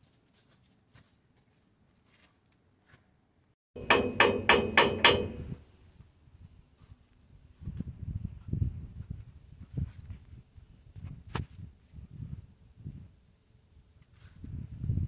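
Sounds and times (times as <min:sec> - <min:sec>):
dull hammer knocks: 0:03.8 - 0:05.6
hammer striking metal: 0:03.8 - 0:05.6.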